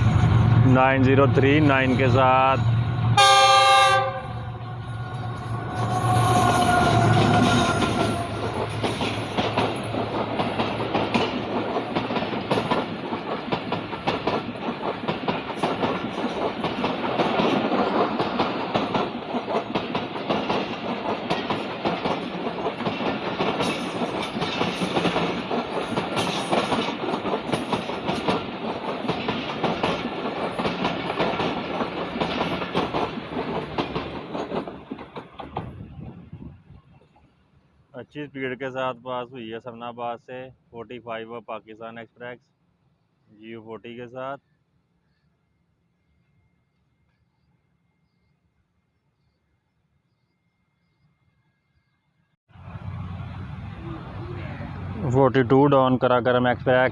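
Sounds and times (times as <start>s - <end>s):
train wheels clattering: 0.0s - 35.9s
train horn: 3.1s - 9.4s.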